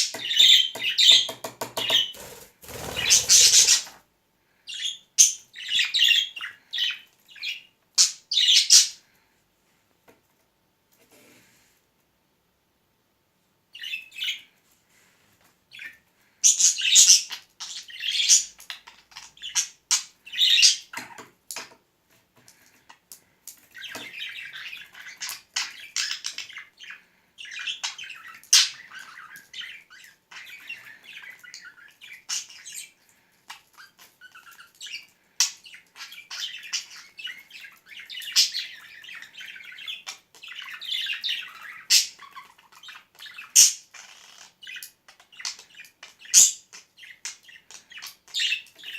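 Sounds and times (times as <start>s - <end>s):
budgerigar chattering and squawking: 2.7s - 4.0s.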